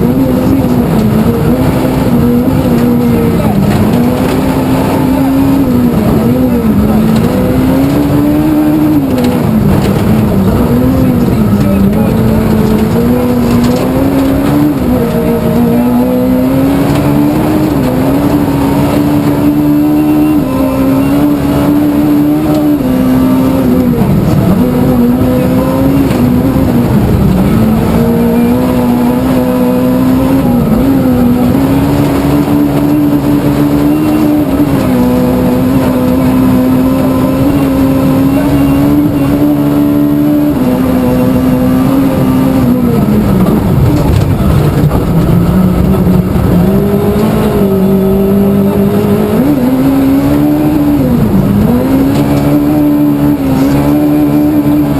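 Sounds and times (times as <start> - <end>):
rally car engine revving: 0.0 - 54.9.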